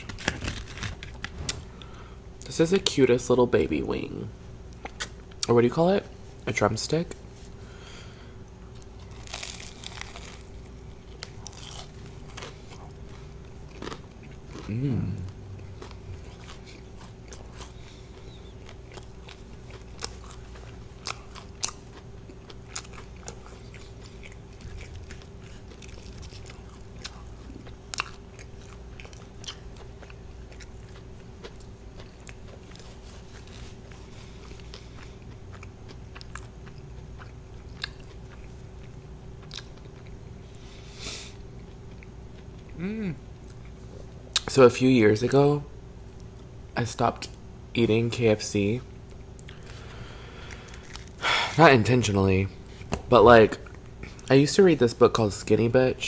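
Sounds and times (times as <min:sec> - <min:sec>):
faint steady hum: 0:00.0 - 0:56.0
chewing crispy fried chicken: 0:08.7 - 0:40.3, 0:49.0 - 0:51.4.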